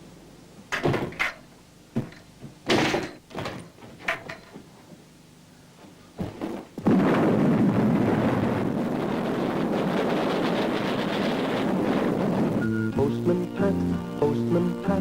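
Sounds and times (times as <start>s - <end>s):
door banging and knocking: 0.7s - 1.4s
steady rushing noise: 6.6s - 15.0s.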